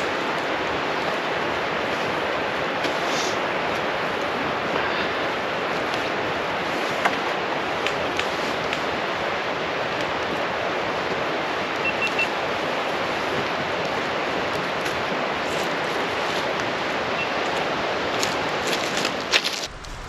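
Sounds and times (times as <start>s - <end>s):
steady rushing noise: 19.1s - 20.0s.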